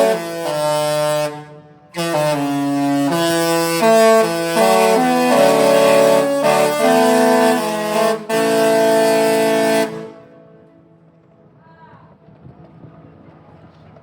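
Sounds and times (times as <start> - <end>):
ship horns playing chords: 0.0 - 10.8.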